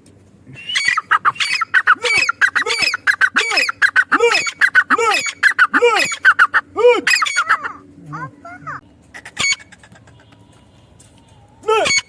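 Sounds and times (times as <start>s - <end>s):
francolin calling: 0.6s - 7.8s.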